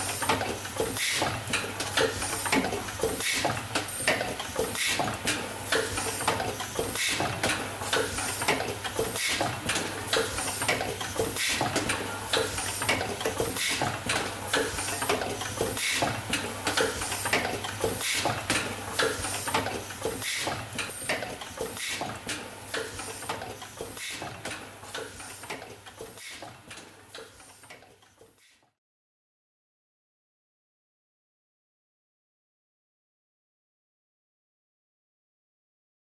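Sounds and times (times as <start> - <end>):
machine clicking and clacking: 0.0 - 28.4.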